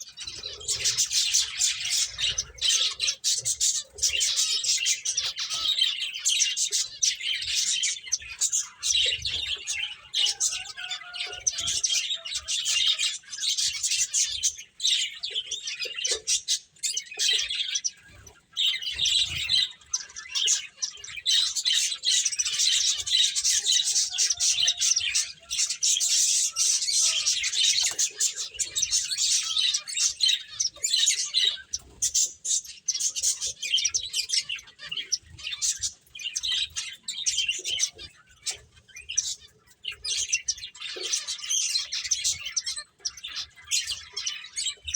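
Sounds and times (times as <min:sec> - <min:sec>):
finches chirping: 0:00.0 - 0:44.9.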